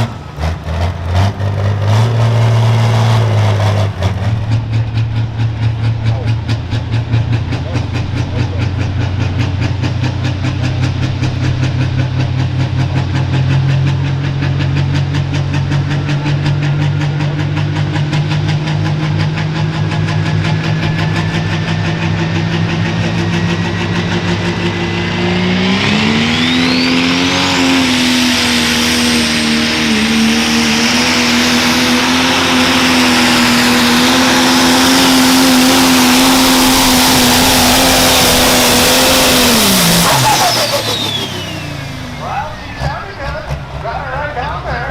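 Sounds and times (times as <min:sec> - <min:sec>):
diesel engine running and revving: 0:00.0 - 0:44.9
turbo whine: 0:10.8 - 0:43.6.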